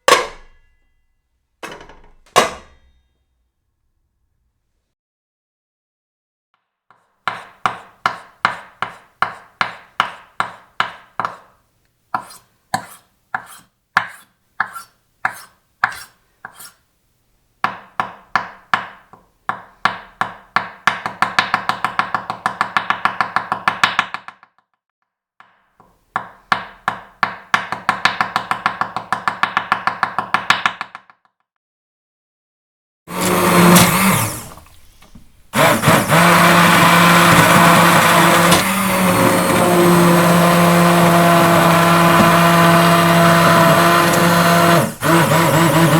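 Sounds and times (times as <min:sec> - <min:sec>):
knife chopping on cutting board: 0:07.3 - 0:16.8, 0:17.6 - 0:24.3, 0:26.2 - 0:30.9, 0:33.2 - 0:45.9.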